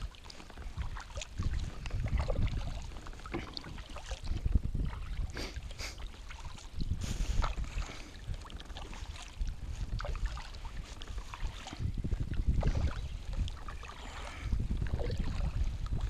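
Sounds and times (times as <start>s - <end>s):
water lapping and splashing: 0.0s - 16.0s
wind gusting on microphone: 0.0s - 16.0s.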